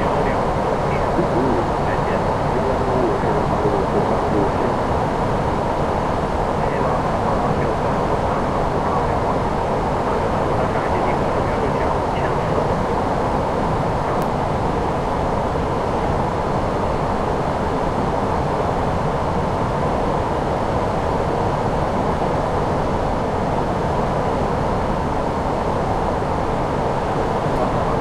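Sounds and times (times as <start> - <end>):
aircraft engine noise: 0.0 - 18.1.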